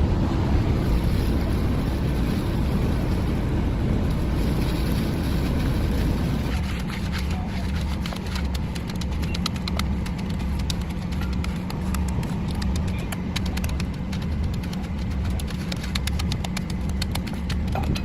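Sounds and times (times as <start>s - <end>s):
machinery engine rumbling: 0.0s - 18.0s.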